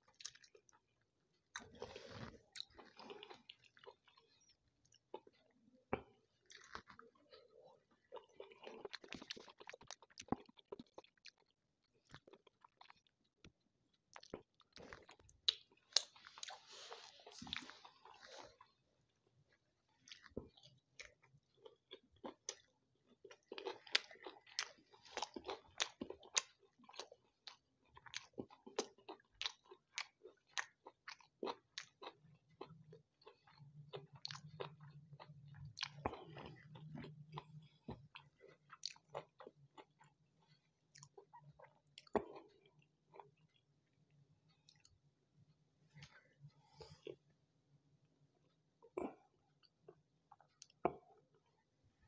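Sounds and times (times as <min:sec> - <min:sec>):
man chewing food: 0:00.0 - 0:45.1.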